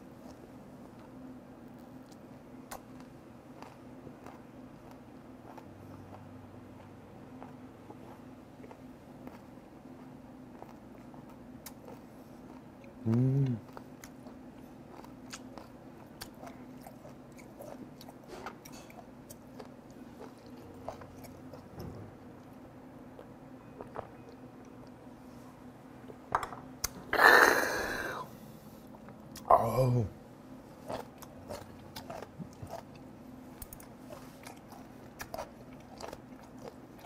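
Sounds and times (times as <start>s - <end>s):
man chewing with wet clicks: 0.1s - 25.2s, 28.8s - 29.5s, 30.7s - 37.0s
man hummed grunt: 13.0s - 13.6s, 27.1s - 28.3s, 29.5s - 30.2s
man breathy exhale: 27.2s - 28.4s.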